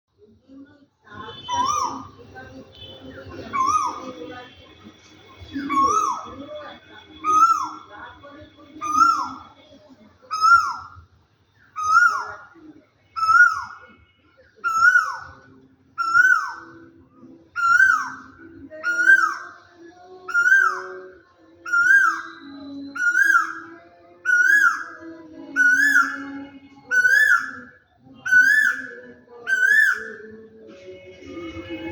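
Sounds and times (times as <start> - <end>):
bird whistled calls: 1.4 - 2.1, 5.6 - 6.4, 7.2 - 7.9, 8.8 - 9.5, 10.3 - 11.0, 11.8 - 12.4, 13.2 - 13.9, 14.6 - 15.4, 16.0 - 16.8, 17.6 - 19.5, 20.3 - 30.4.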